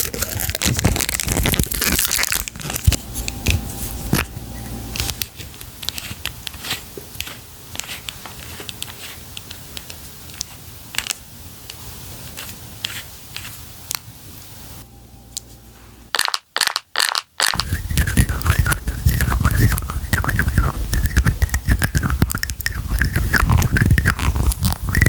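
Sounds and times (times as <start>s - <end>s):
packaging crinkling: 0.0s - 4.3s.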